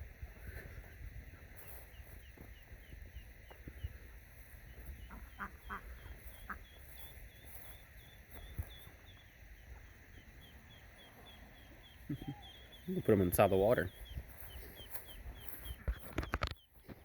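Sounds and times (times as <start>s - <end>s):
ducklings peeping: 0.0s - 17.0s
duck calls: 4.8s - 7.1s.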